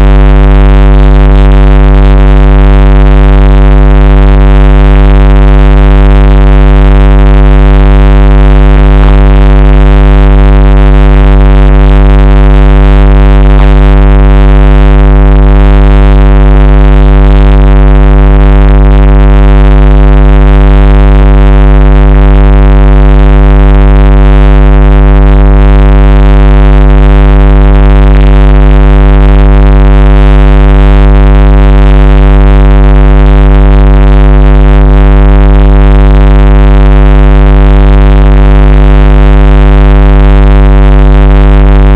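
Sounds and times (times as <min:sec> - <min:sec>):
steady electronic drone: 0:00.0 - 0:23.8.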